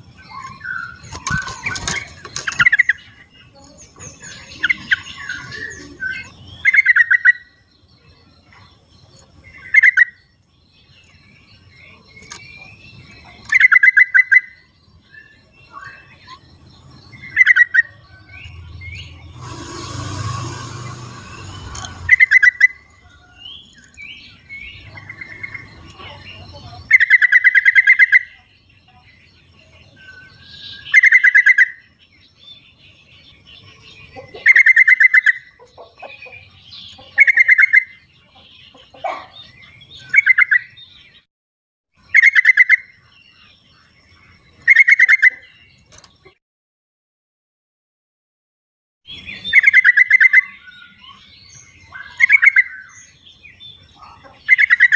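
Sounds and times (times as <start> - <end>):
bird chattering calls: 17.2 - 23.0.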